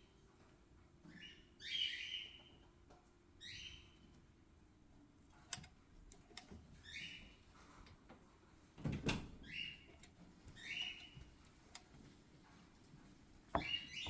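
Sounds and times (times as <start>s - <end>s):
bird chirping: 1.1s - 2.6s, 3.4s - 4.1s, 10.5s - 11.2s, 13.6s - 14.0s.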